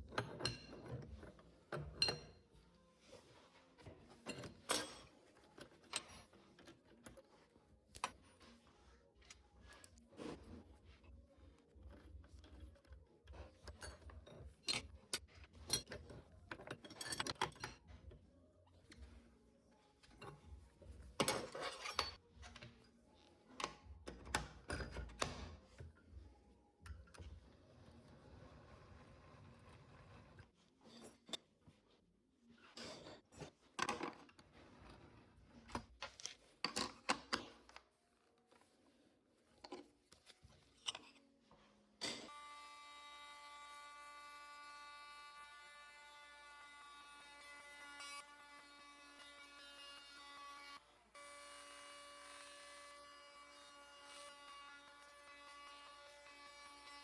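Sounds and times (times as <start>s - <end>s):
wood and hand tools handled: 0.0s - 26.2s
clicks and knocks of tools: 11.9s - 18.2s.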